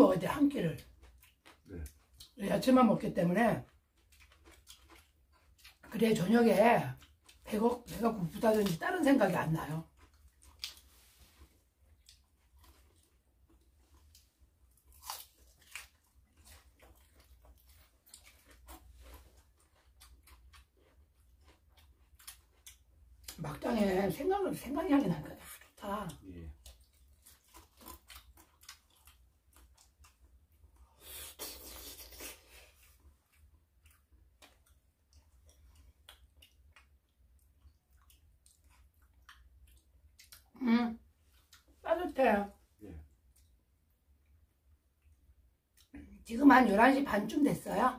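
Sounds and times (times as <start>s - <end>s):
chewing leafy vegetables crunches: 3.7s - 5.9s, 9.4s - 23.6s, 25.5s - 30.3s.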